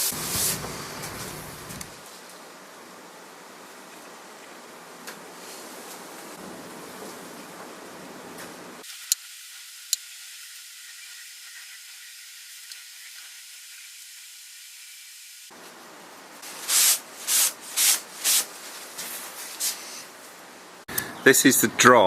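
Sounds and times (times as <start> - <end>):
hissing rubbing strokes: 0.0 - 2.0, 16.4 - 20.1
faint steady hiss: 0.0 - 22.0.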